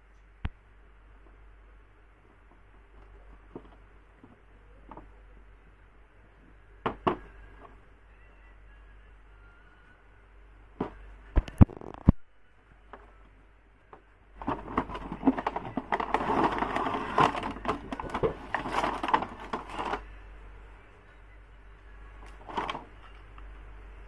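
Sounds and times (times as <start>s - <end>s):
plastic packaging crinkling: 10.8s - 12.2s, 14.4s - 20.2s, 22.2s - 23.2s.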